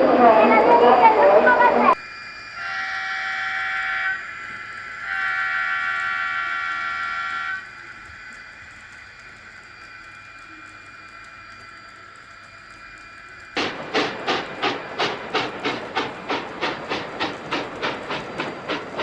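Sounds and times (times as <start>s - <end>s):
train horn chord: 2.5s - 7.7s.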